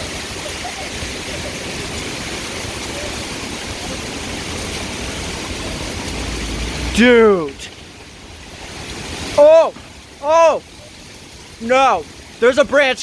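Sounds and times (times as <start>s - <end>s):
heavy rain: 0.0s - 13.0s
wind buffeting rumble: 2.4s - 10.2s.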